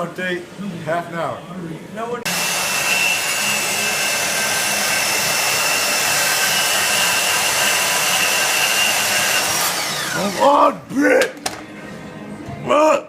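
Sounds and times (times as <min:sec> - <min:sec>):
power tool motor whining: 0:02.3 - 0:10.6.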